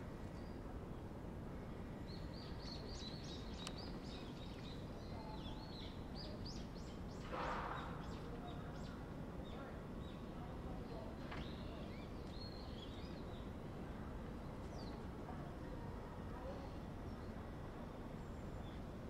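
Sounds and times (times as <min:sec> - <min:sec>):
small birds twittering: 0:02.0 - 0:13.6.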